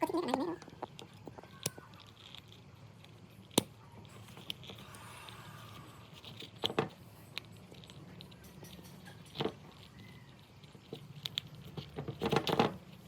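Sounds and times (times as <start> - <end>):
small hard clicks and knocks: 10.8 - 13.0.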